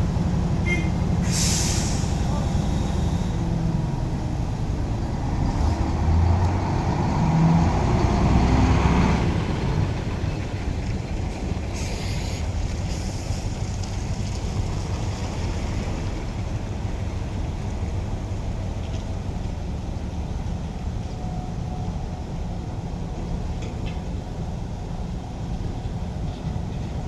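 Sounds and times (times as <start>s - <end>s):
truck diesel engine: 0.0s - 27.0s
short hisses: 1.2s - 3.3s.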